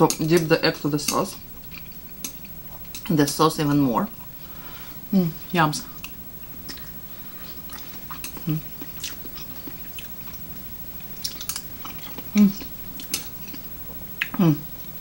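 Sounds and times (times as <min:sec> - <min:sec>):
person chewing: 0:01.6 - 0:03.1, 0:06.0 - 0:14.9
person humming: 0:08.4 - 0:08.7, 0:12.3 - 0:12.7, 0:14.2 - 0:14.8.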